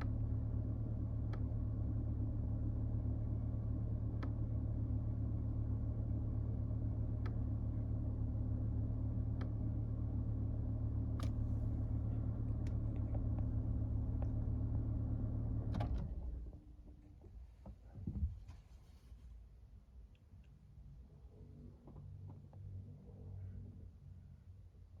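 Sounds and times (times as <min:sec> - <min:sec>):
car engine idling: 0:05.1 - 0:15.9.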